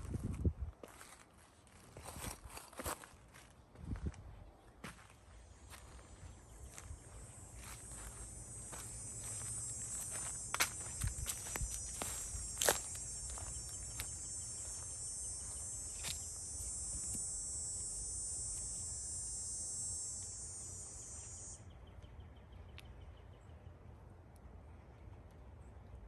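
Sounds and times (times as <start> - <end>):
insects trilling: 5.4 - 21.6.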